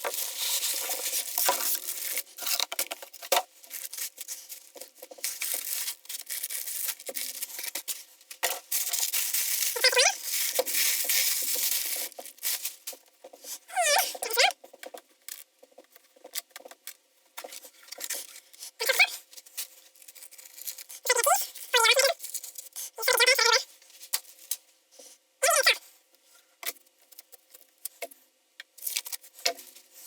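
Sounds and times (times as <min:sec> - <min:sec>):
cardboard rustling and crinkling: 0:00.0 - 0:18.6, 0:19.2 - 0:22.7.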